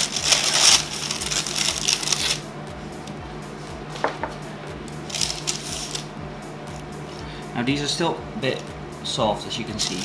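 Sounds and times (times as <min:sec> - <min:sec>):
cookies rustling on baking tray: 0:00.0 - 0:02.4
background music: 0:00.0 - 0:10.0.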